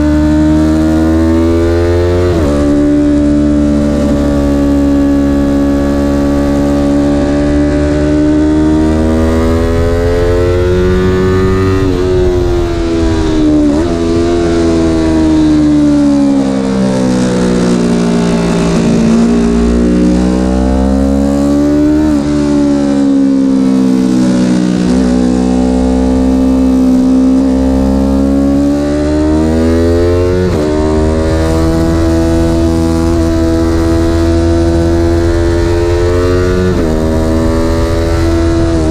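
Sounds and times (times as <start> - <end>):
car engine revving: 0.0 - 38.9
road and wind noise: 0.0 - 38.9.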